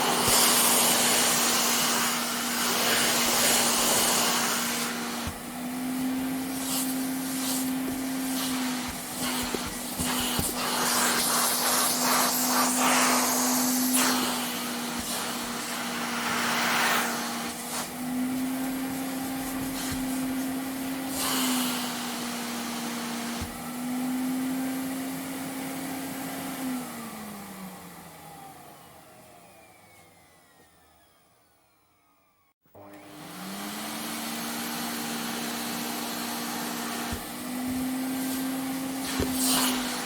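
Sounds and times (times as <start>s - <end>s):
vacuum cleaner running: 0.0s - 40.0s
vacuum motor winding down: 26.6s - 40.0s.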